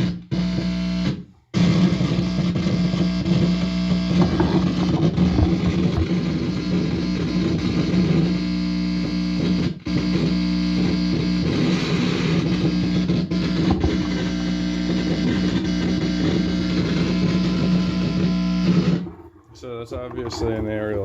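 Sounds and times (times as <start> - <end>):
guitar amplifier buzzing: 0.0 - 21.0.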